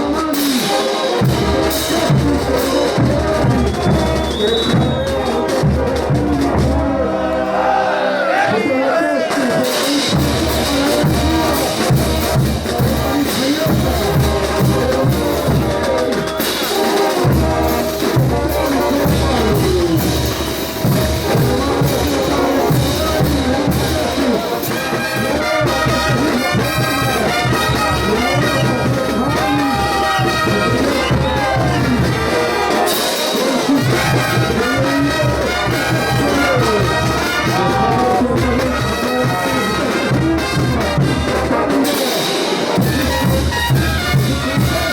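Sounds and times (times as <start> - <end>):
brass band playing dance music: 0.0 - 44.9.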